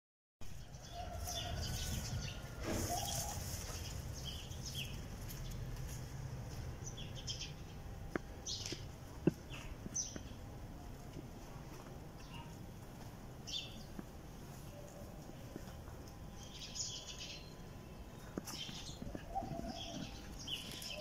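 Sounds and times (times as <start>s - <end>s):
small birds chirping: 0.4s - 21.0s.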